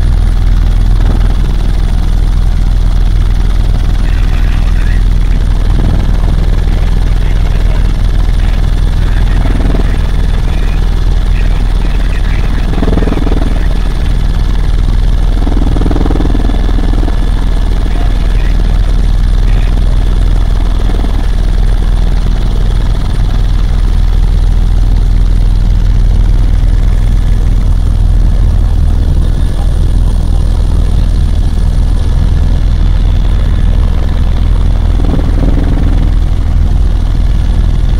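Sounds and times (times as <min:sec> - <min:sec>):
helicopter rotor drone: 0:00.0 - 0:37.9
turbine whine: 0:00.0 - 0:37.9
faint voices: 0:03.8 - 0:22.4, 0:26.2 - 0:36.4.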